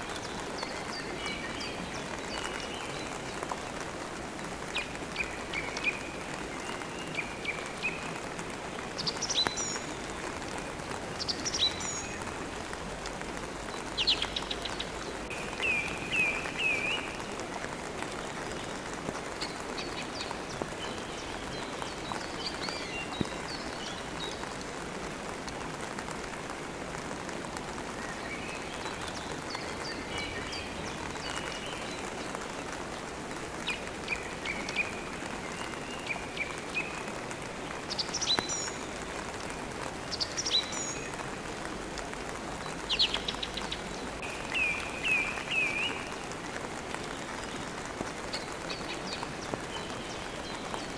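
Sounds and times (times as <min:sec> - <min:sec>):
steady rain: 0:00.0 - 0:50.9
birds chirping: 0:42.6 - 0:46.4.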